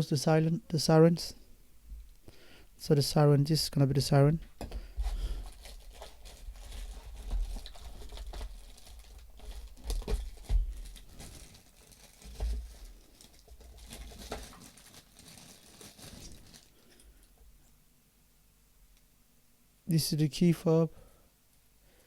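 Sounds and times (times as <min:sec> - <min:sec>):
plastic packaging crinkling: 0:05.0 - 0:17.0.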